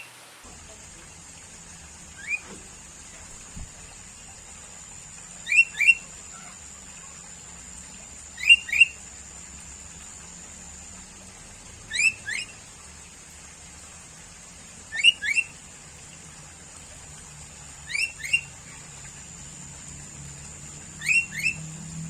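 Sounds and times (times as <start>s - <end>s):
faint high-pitched hiss: 0.0s - 22.0s
bulbul calling: 2.0s - 3.7s, 5.4s - 7.0s, 8.3s - 9.0s, 11.9s - 12.6s, 14.9s - 15.6s, 17.8s - 19.0s, 20.9s - 21.8s.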